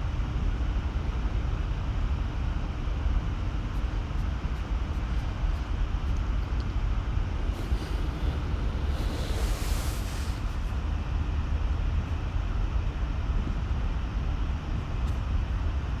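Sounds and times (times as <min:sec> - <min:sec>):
low rumble with hiss: 0:00.0 - 0:16.0
brief bright hiss: 0:07.4 - 0:10.8.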